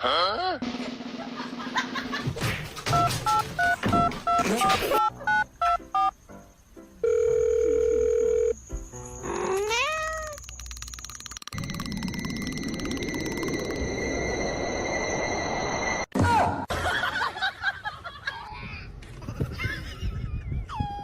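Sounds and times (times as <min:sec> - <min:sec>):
cat meowing: 0:09.5 - 0:10.4
steady electronic tone: 0:11.0 - 0:16.1.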